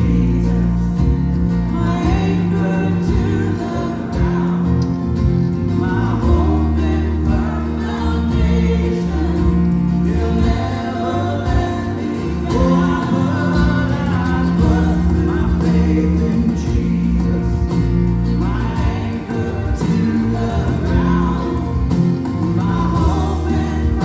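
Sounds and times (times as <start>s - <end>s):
gospel singing with accompaniment: 0.0s - 24.0s
low bass notes: 0.0s - 24.0s.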